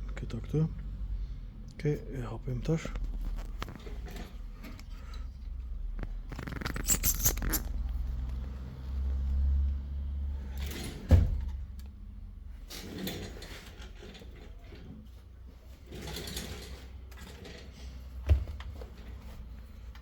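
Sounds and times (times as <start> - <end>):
handling clicks and scraping: 2.8 - 8.6.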